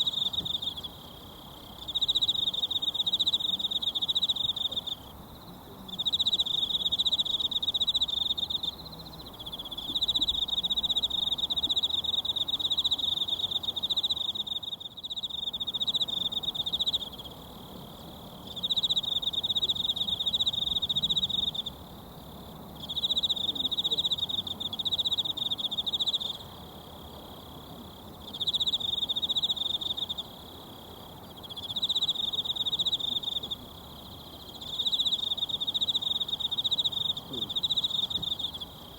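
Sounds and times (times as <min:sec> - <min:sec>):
insect trilling: 0:28.2 - 0:38.9.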